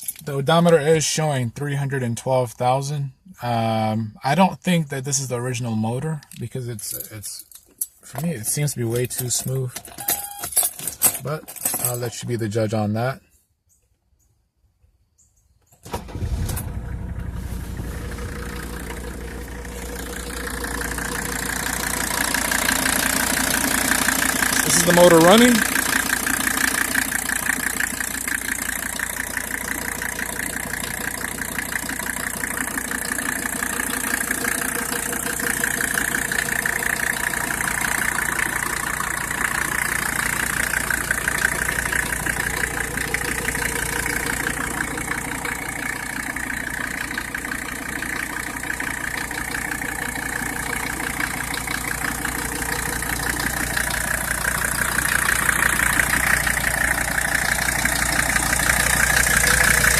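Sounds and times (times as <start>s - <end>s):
diesel engine idling: 15.9s - 59.9s.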